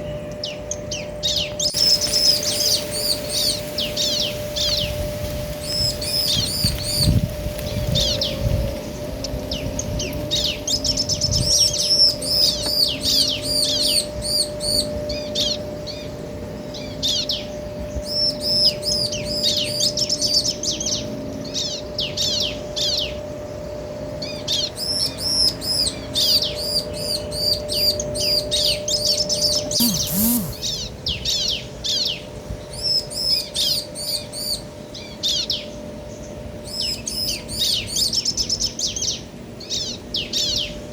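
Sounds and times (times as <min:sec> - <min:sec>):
birds chirping: 0:01.8 - 0:05.0, 0:29.8 - 0:30.8.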